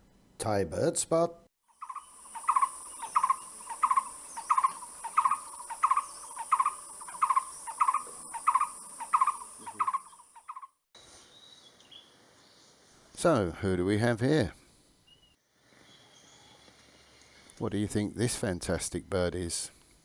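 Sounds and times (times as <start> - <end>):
high-pitched insect drone: 1.7 - 10.1
bird hooting call: 1.8 - 10.7.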